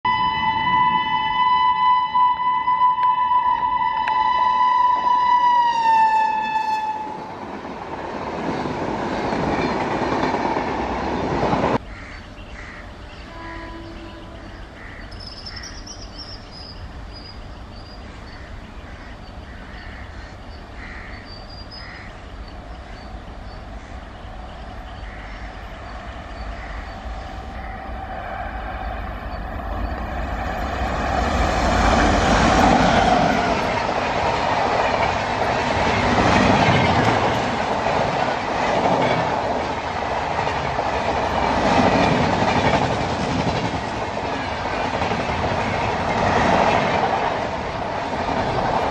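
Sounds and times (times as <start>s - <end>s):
train rumbling: 0.1s - 48.9s
train wheels clacking over rail joints: 6.4s - 11.8s, 31.0s - 48.9s.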